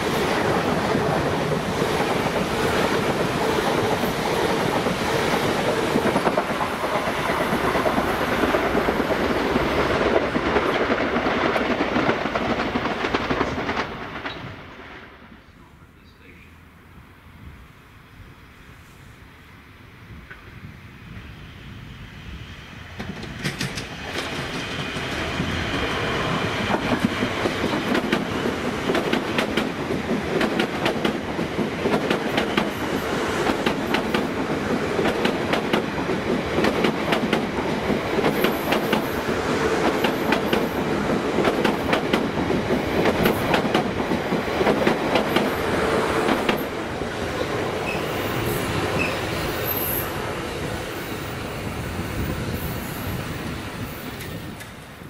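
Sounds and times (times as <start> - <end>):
train wheels clattering over rail joints: 0.7 - 14.6, 23.0 - 46.8
wheel squeal: 47.8 - 50.0.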